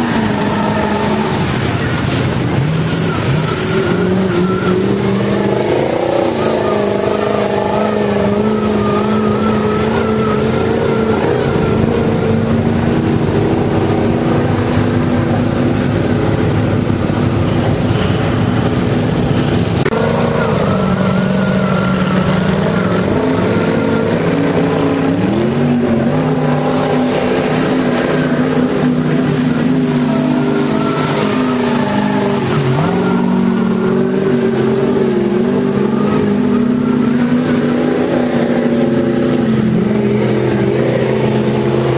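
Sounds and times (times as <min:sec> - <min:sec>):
truck engine revving: 0:00.0 - 0:41.9.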